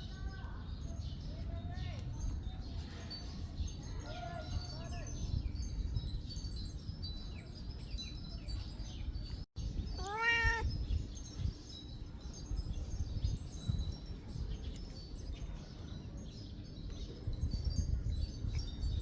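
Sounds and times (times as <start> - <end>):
cat meowing: 10.0 - 10.7.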